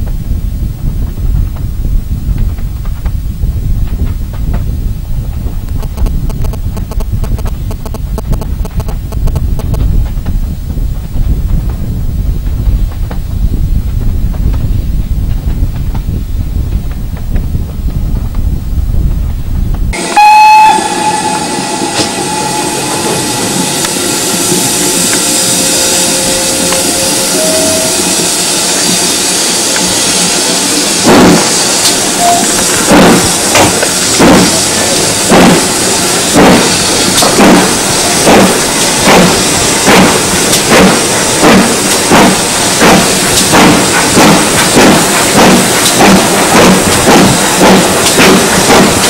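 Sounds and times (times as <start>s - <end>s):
wind buffeting microphone: 0.0s - 49.0s
steam locomotive exhaust chuffs: 2.3s - 49.0s
steam whistle blast: 20.0s - 29.7s, 32.2s - 32.6s
steam hissing: 20.0s - 49.0s.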